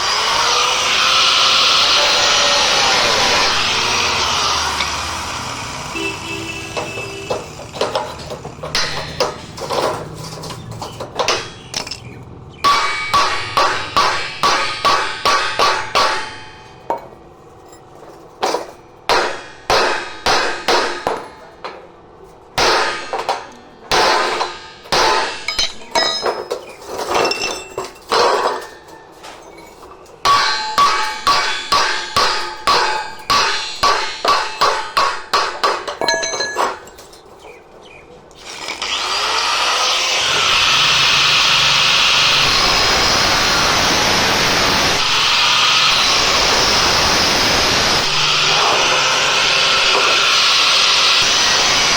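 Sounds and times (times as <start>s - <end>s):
hammer striking metal: 6.0s - 17.1s, 18.4s - 21.9s, 22.6s - 37.0s, 40.4s - 51.9s.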